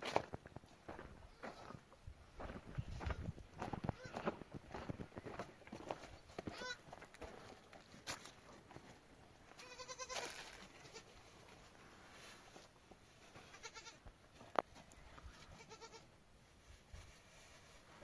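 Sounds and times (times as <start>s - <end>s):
sheep bleating: 9.6s - 11.0s, 15.6s - 16.1s.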